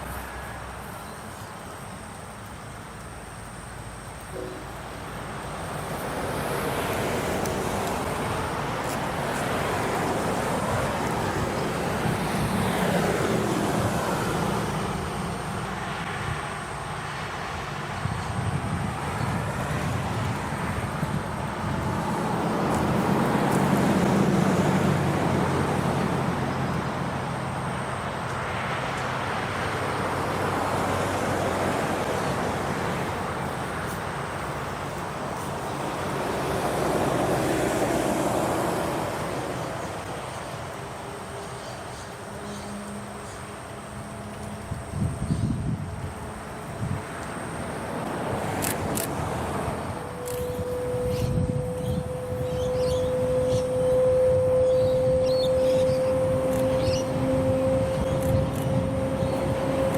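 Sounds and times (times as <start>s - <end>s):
diesel train engine drone: 0.0s - 59.9s
wheel and rail noise: 0.0s - 59.9s.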